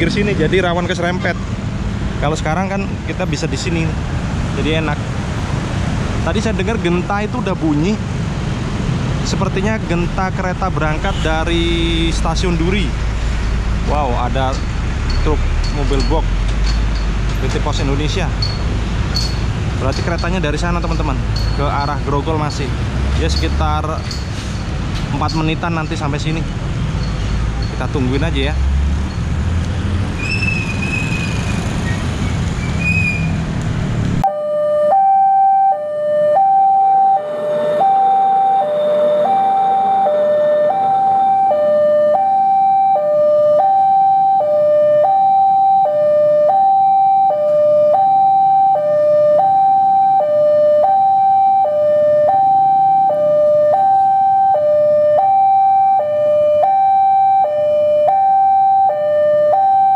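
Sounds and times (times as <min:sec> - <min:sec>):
street traffic: 0:00.0 - 0:59.9
level crossing alarm two-tone: 0:34.2 - 0:59.9.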